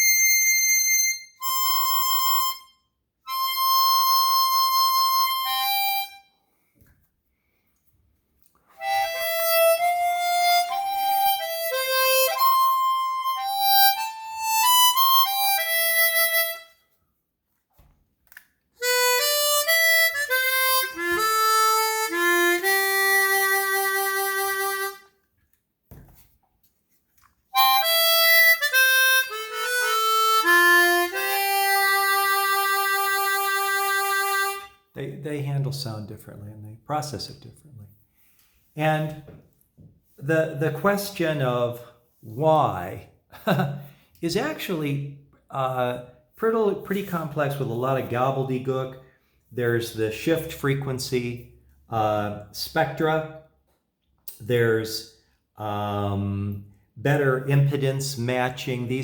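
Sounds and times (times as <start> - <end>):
chromatic harmonica melody: 0.0 - 6.6, 8.7 - 17.0, 18.8 - 25.3, 27.5 - 35.0.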